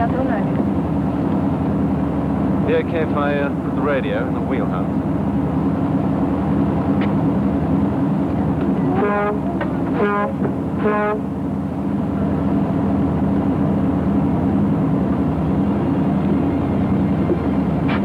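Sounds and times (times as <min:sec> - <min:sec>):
boat engines droning: 0:00.0 - 0:18.0
boat horn toots: 0:08.6 - 0:11.7.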